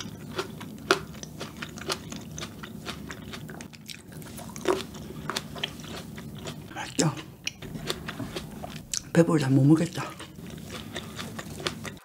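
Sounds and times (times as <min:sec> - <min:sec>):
chewing crunchy grapes: 0:00.0 - 0:12.0.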